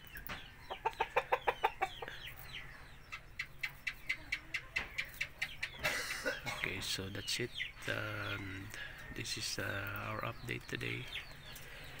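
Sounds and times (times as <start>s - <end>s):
bird calls: 0.0s - 12.0s.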